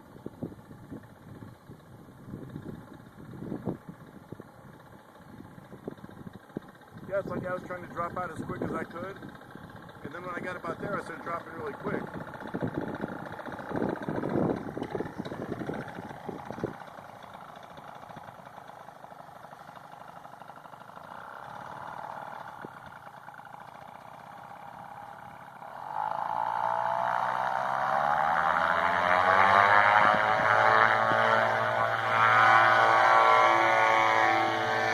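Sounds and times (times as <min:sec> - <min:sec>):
wind rumble on microphone: 0:00.0 - 0:16.9, 0:28.7 - 0:34.2
paramotor engine buzzing: 0:00.0 - 0:34.9.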